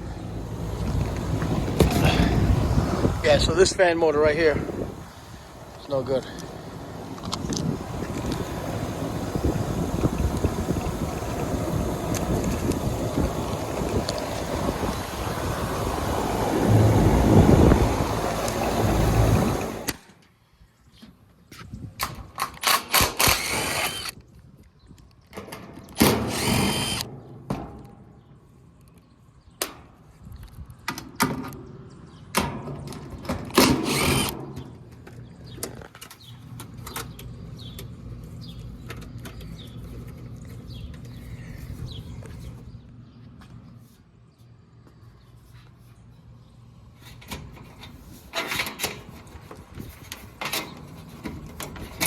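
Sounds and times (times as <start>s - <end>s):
wind on microphone: 0.6s - 5.7s, 6.9s - 19.9s
cordless power drill: 22.6s - 24.2s, 26.0s - 27.1s, 33.6s - 34.4s.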